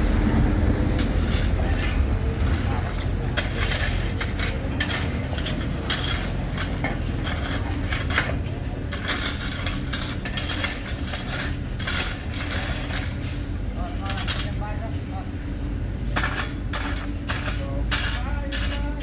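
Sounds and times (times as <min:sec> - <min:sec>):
construction machinery engine drone: 0:00.0 - 0:19.0
metallic clinks and scrapes: 0:00.9 - 0:15.4.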